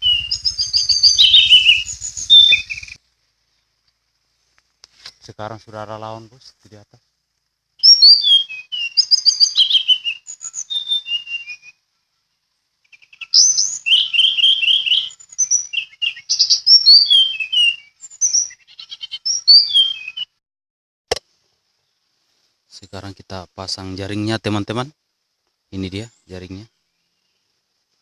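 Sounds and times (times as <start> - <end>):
bird whistling high falling notes: 0.0 - 3.0, 7.8 - 11.8, 13.0 - 20.3.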